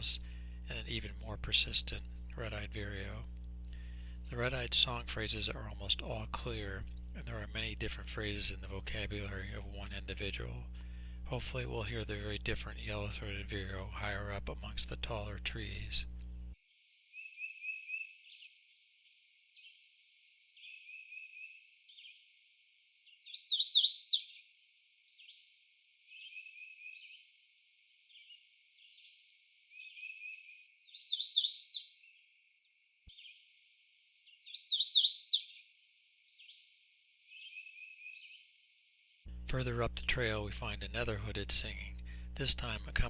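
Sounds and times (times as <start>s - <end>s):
titmouse song phrases: 0.0s - 3.3s, 4.3s - 10.7s, 11.3s - 16.1s, 39.4s - 43.0s
warbler singing: 0.0s - 16.6s, 34.5s - 35.5s
vireo song phrases: 39.3s - 43.0s.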